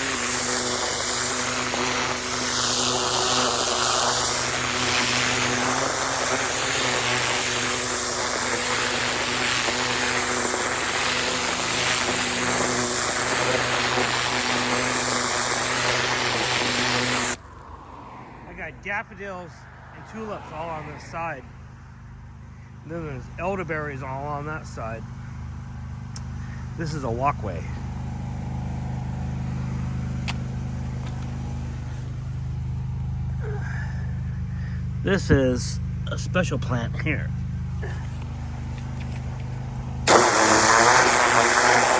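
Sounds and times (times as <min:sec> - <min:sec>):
pressure washer spraying: 0:00.0 - 0:17.4, 0:38.6 - 0:41.9.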